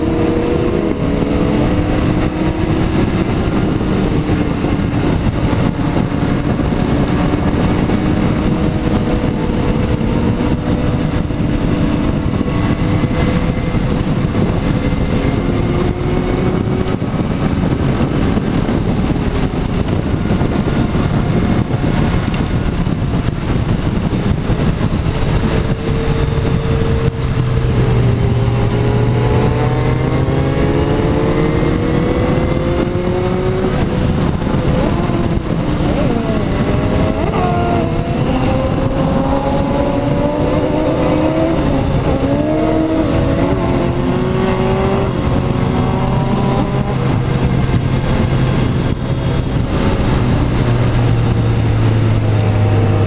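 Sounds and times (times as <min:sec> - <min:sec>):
motorcycle engine running: 0:00.0 - 0:53.0
wind rush on microphone: 0:00.0 - 0:53.0.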